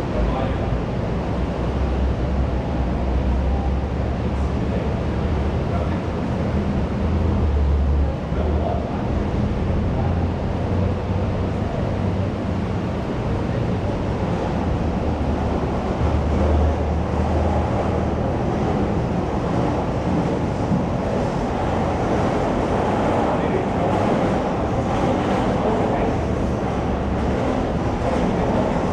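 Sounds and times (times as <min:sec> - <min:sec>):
many indistinct voices: 0:02.8 - 0:28.9.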